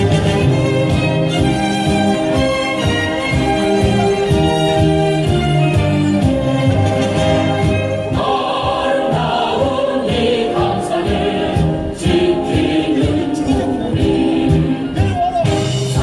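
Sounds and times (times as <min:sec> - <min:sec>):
band playing with steady beat: 0:00.0 - 0:16.0
group of voices singing: 0:07.2 - 0:16.0.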